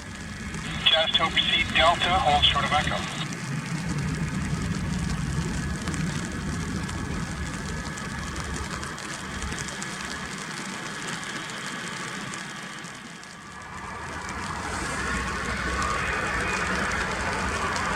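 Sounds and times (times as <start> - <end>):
jet engines rumbling: 0.0 - 7.5
rain hiss: 0.0 - 17.9.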